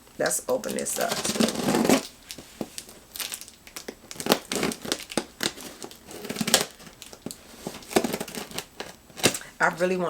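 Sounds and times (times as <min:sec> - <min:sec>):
packaging crinkling and tearing: 0:00.5 - 0:09.5.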